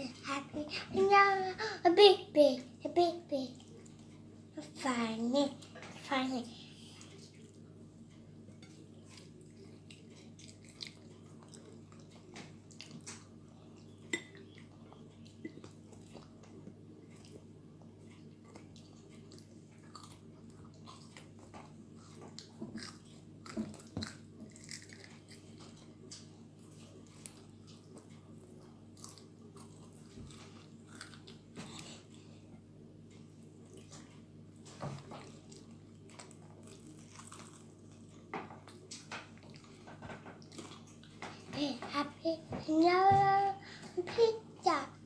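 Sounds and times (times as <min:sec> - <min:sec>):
child chewing: 0:06.7 - 0:41.5.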